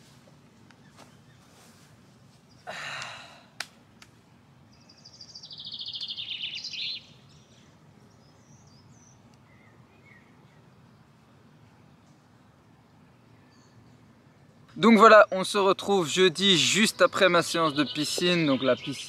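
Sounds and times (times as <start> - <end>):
low outdoor background noise: 0.0 - 19.0
person sighing: 2.6 - 3.6
songbird trilling: 4.7 - 10.6, 14.8 - 19.0
faint bird chirps: 4.7 - 11.1.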